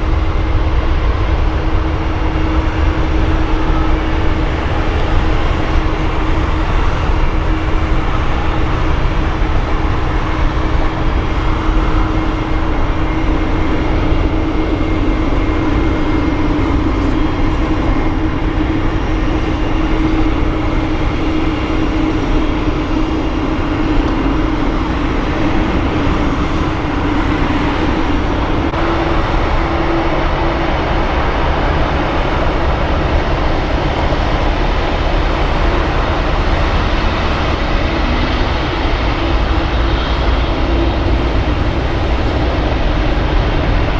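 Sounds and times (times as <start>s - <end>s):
faint high whine: 0.0s - 43.9s
jet engines running: 0.0s - 43.9s.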